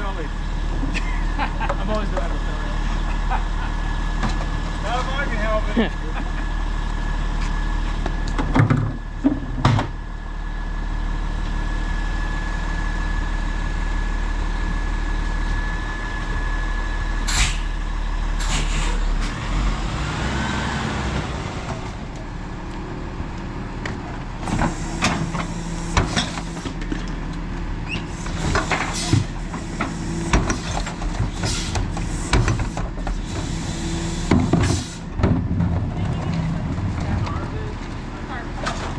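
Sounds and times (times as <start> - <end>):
garbage truck engine running: 0.0 - 38.9
clanks and knocks: 8.3 - 10.0, 34.3 - 37.4
short hisses: 17.3 - 17.7, 18.4 - 19.0.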